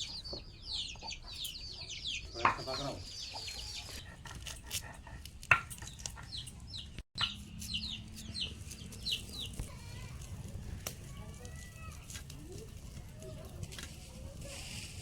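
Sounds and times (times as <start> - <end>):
chicks peeping: 0.0 - 10.7.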